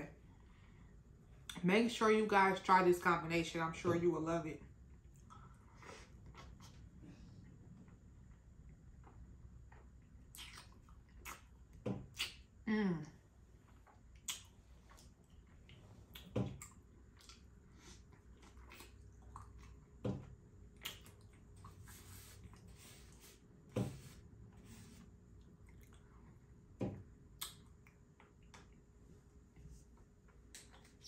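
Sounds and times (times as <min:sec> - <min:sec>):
chewing and mouth smacking: 0:07.8 - 0:12.5, 0:13.6 - 0:20.0, 0:20.7 - 0:22.6, 0:25.4 - 0:26.4, 0:27.3 - 0:28.8, 0:29.9 - 0:31.0.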